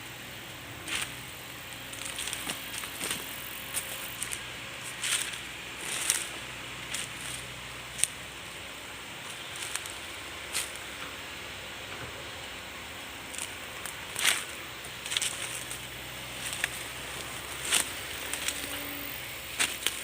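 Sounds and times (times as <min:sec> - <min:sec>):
faint engine hum: 0:00.0 - 0:20.0
soil and stones cracking: 0:13.3 - 0:20.0.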